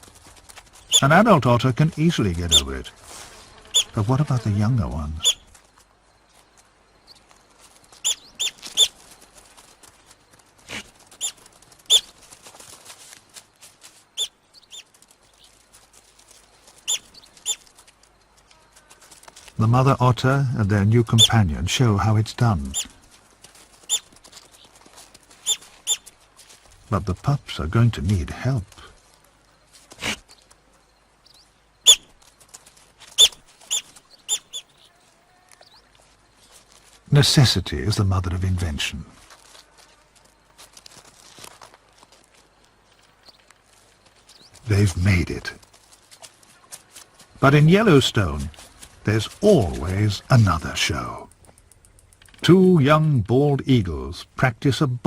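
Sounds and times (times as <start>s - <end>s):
otters chirping: 0.7s - 2.9s, 3.6s - 12.3s, 13.2s - 20.1s, 20.7s - 23.0s, 23.7s - 28.8s, 29.5s - 39.0s, 42.8s - 54.8s
otter pups chirping: 0.8s - 1.2s, 3.7s - 4.0s, 5.2s - 5.6s, 7.0s - 9.3s, 10.0s - 12.3s, 14.1s - 15.6s, 16.7s - 17.9s, 22.6s - 23.0s, 23.8s - 24.8s, 25.4s - 26.1s, 31.2s - 36.6s.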